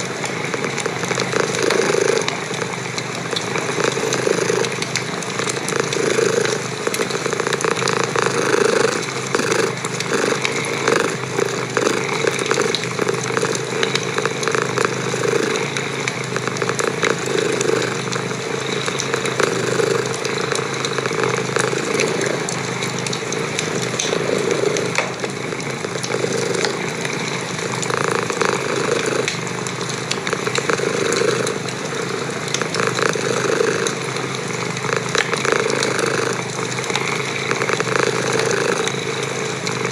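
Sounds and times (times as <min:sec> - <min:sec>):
cat purring: 0:00.0 - 0:39.9
wood fire crackling and popping: 0:00.0 - 0:39.9.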